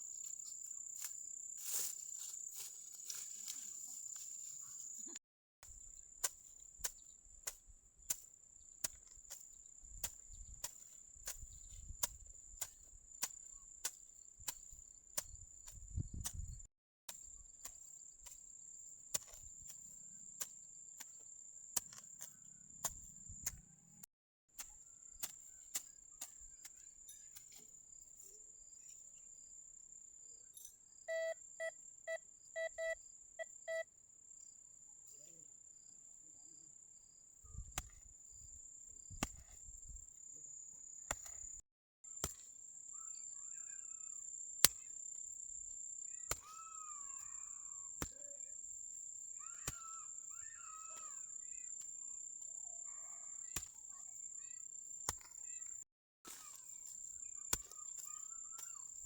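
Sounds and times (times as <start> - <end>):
metal detector beeps: 31.1 - 33.9.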